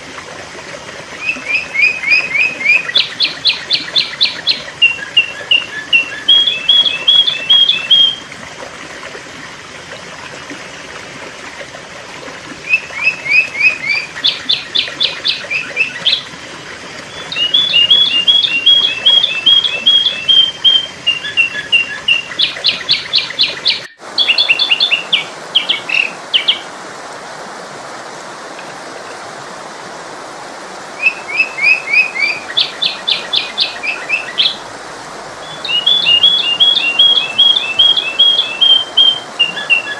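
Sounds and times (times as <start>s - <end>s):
bird chirping: 1.2s - 8.2s, 17.1s - 26.6s, 35.4s - 39.9s.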